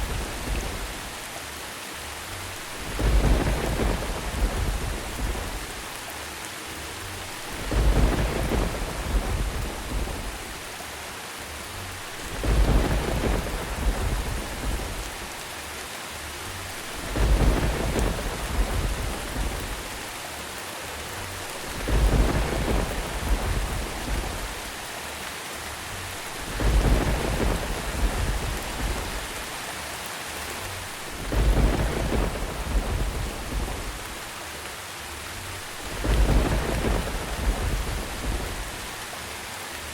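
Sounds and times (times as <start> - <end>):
thunder rumbling: 0.0 - 1.2, 2.6 - 6.0, 7.1 - 10.8, 12.0 - 15.5, 16.6 - 20.2, 21.1 - 25.0, 25.9 - 29.7, 30.5 - 34.4, 35.5 - 39.1
steady rain hiss: 0.0 - 39.9.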